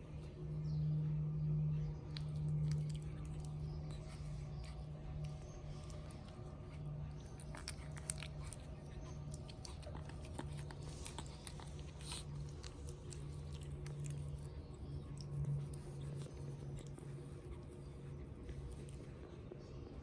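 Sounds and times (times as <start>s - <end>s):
puppies chewing and biting: 0.0s - 20.0s
steady low hum: 0.0s - 20.0s
small clicks and crunches: 2.1s - 17.7s.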